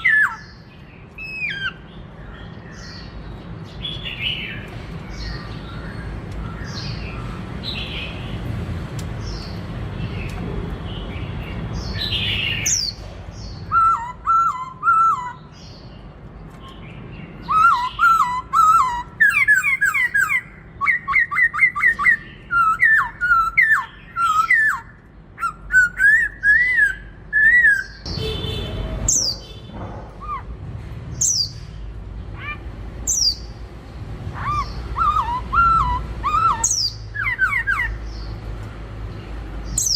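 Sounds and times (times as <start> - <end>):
bird whistling song: 0.0 - 8.2, 11.8 - 15.9, 16.7 - 29.6, 30.2 - 30.6, 31.2 - 31.8, 32.4 - 33.6, 34.4 - 38.3, 39.7 - 39.9
high bird calls: 0.0 - 8.5, 9.2 - 33.7, 34.3 - 38.5.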